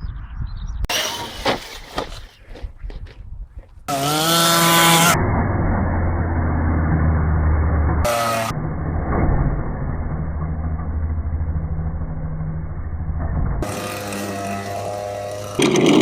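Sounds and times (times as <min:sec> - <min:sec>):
model vehicles crashing and clattering: 0:00.9 - 0:02.3, 0:13.6 - 0:16.0.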